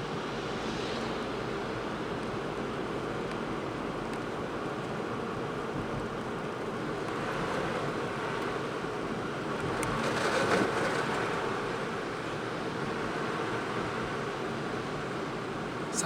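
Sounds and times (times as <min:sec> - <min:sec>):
car driving road noise: 0:00.0 - 0:16.0.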